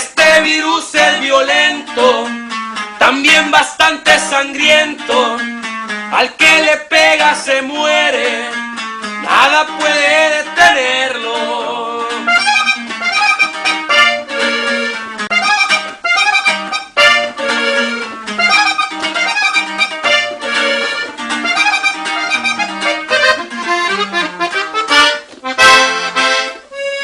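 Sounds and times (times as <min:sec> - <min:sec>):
accordion playing melodic runs: 0:12.0 - 0:27.0
band with steady bass line: 0:12.1 - 0:27.0.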